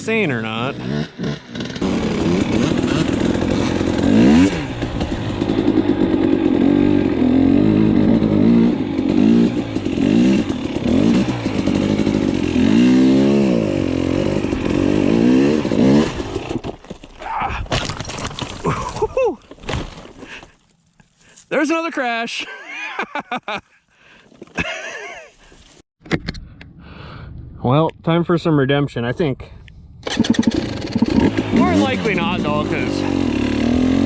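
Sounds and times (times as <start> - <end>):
dirt bike engine revving: 0.1 - 16.6, 30.0 - 34.0.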